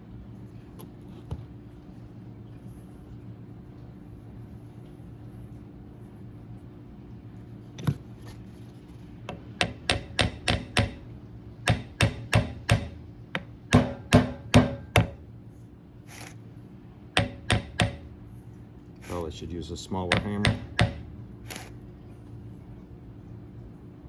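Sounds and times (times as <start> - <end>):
hammer tapping on metal: 9.6 - 11.1, 11.7 - 15.2, 17.2 - 18.1, 20.1 - 21.1.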